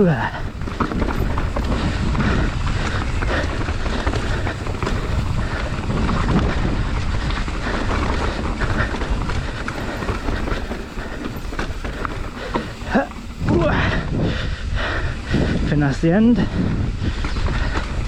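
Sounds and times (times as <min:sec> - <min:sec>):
tyres rumbling over rock: 0:00.0 - 0:13.6
bike rattling: 0:00.0 - 0:18.0
wind buffeting microphone: 0:00.0 - 0:18.0.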